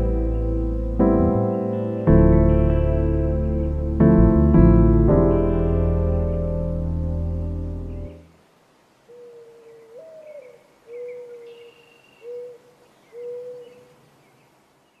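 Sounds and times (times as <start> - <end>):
bird cooing: 9.1 - 14.0
faint high bird chirps: 9.1 - 15.0.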